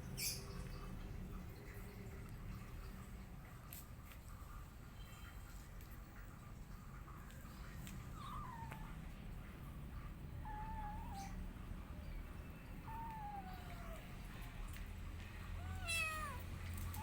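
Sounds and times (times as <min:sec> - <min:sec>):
cat meowing: 0:08.1 - 0:09.0, 0:10.4 - 0:11.4, 0:12.8 - 0:14.2, 0:15.5 - 0:17.0.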